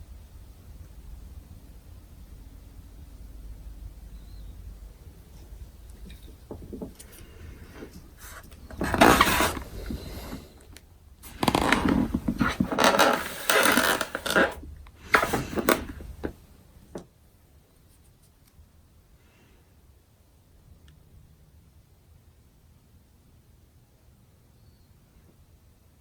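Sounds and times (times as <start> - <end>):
rubbing and scraping handling noise: 5.3 - 17.0.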